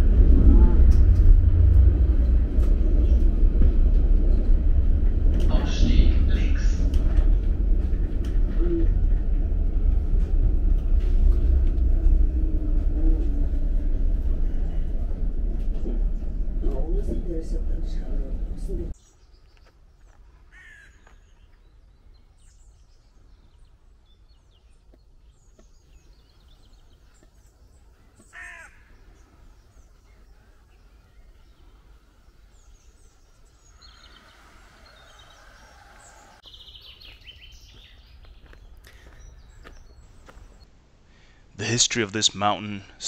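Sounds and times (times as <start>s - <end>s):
low steady rumble: 0.0s - 19.0s
birds calling: 1.0s - 42.8s.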